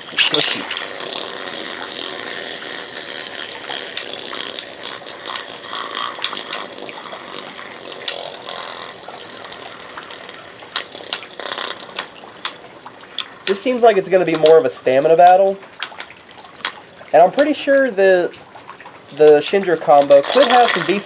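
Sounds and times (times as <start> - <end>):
spinning tops whirring: 0.0 - 16.0, 19.1 - 21.0
spinning tops clicking together: 0.1 - 12.6.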